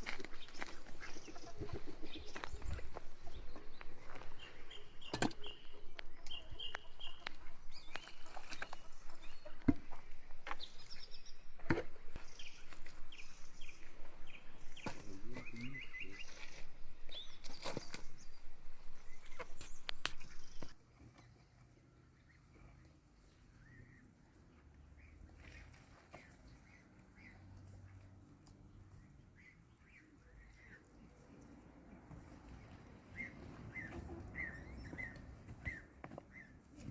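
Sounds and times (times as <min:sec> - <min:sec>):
small birds chirping: 0:00.0 - 0:21.4, 0:32.5 - 0:36.8.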